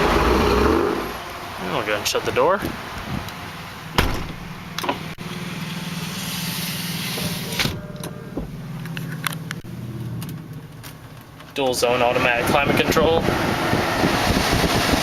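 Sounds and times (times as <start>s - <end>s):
vehicle door shutting: 3.9s - 5.1s, 7.0s - 11.3s
low steady hum: 7.4s - 11.7s.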